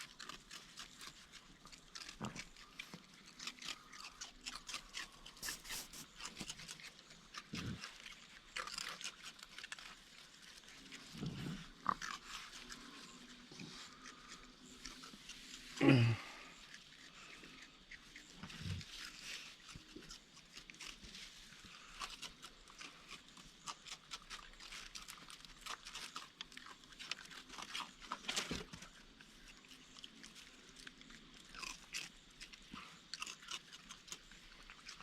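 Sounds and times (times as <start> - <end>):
raccoon crunching and chewing food: 0.0 - 35.0.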